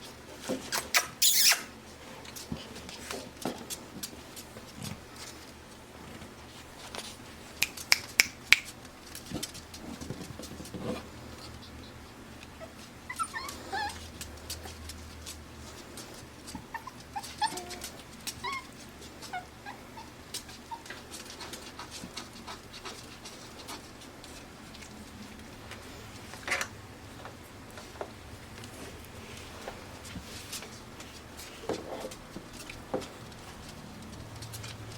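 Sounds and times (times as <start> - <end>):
puppies whimpering and yipping: 0.7 - 1.8, 11.3 - 14.8, 16.4 - 23.8.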